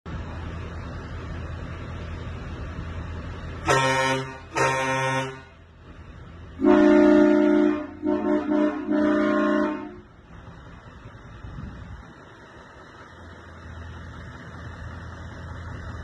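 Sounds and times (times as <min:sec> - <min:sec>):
truck air horn blasts: 0:03.6 - 0:05.6, 0:06.6 - 0:10.1.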